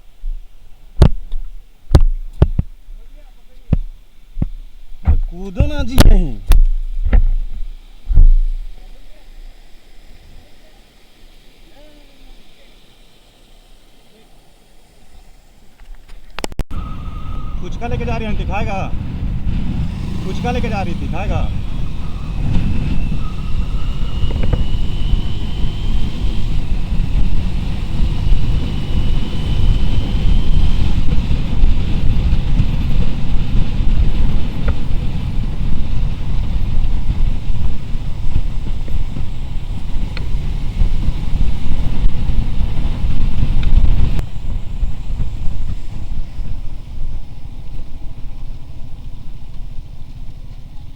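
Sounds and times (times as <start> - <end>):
faint thin whine: 0.0 - 18.9
motorcycle engine and road rumble: 0.0 - 50.9
wind buffeting microphone: 16.7 - 50.9.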